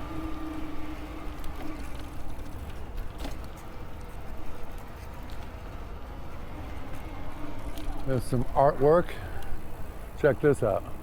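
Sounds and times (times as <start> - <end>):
electric motor whine: 0.0 - 2.7
low rumble of bike ride: 0.0 - 11.0.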